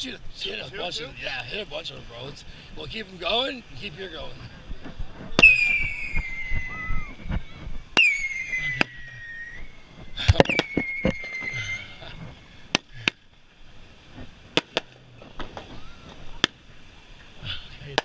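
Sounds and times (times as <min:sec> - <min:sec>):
firework whistles: 0:05.3 - 0:12.3.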